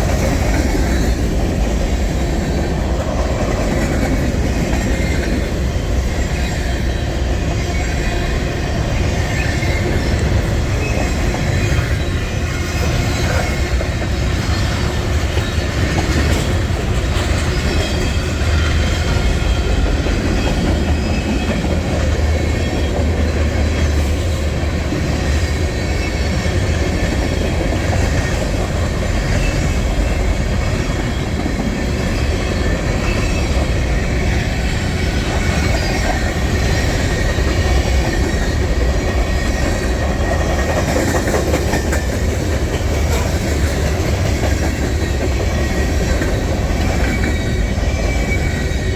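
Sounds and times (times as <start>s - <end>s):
freight train rumbling: 0.0s - 48.9s
wheels clacking over rail joints: 0.0s - 48.9s.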